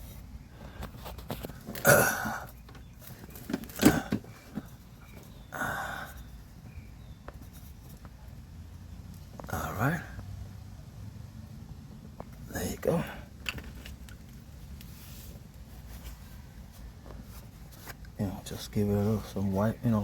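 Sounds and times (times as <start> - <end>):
man grunting with effort: 1.8 - 2.5.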